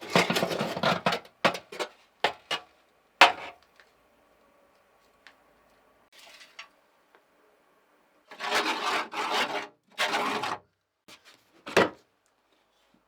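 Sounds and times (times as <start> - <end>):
hard objects knocking and clattering: 0.0 - 3.6.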